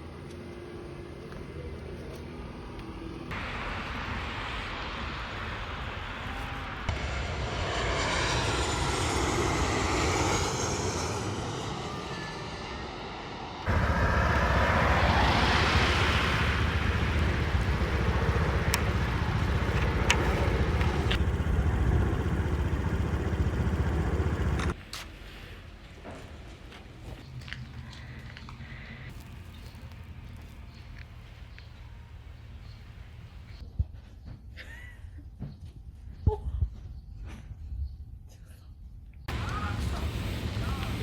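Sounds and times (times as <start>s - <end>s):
jet airliner roaring overhead: 3.2s - 24.8s, 39.3s - 41.0s
deep rumble: 4.0s - 24.8s.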